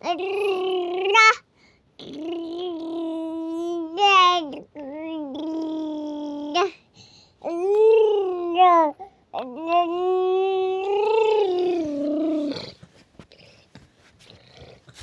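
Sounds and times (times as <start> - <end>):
child imitating a car: 0.0 - 1.4, 2.0 - 6.8, 7.4 - 12.8.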